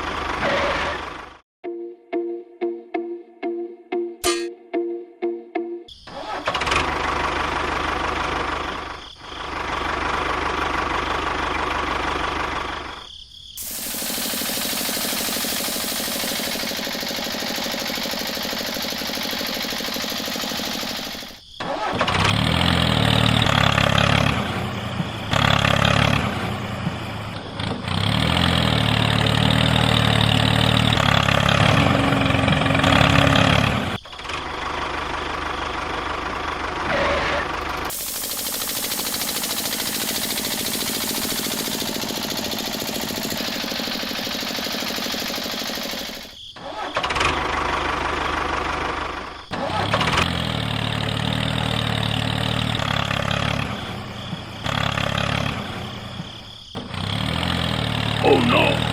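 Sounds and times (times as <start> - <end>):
small motor running: 13.6 - 21.4, 37.9 - 46.4.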